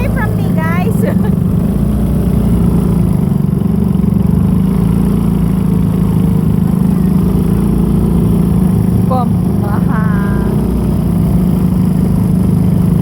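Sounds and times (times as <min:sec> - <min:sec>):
small boat engine humming: 0:00.0 - 0:13.0.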